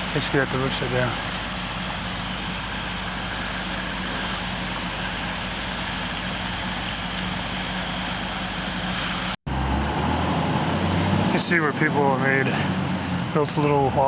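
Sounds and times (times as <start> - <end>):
motor hum: 0.0 - 10.1.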